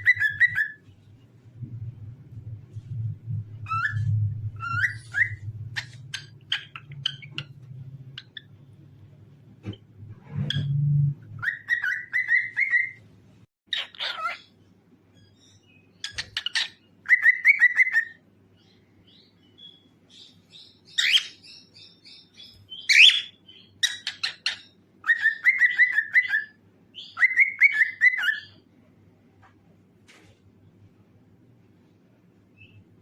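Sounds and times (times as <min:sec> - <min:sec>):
cockatiel chirping and trilling: 0:00.0 - 0:00.8, 0:03.6 - 0:08.5, 0:11.4 - 0:13.0, 0:13.7 - 0:14.6, 0:15.2 - 0:28.6.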